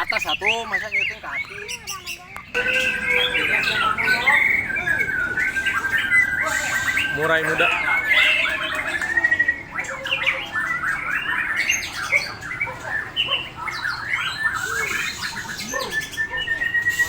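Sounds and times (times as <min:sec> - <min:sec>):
birds chirping and whistling: 0:00.0 - 0:17.0
long held whistle: 0:02.6 - 0:07.2.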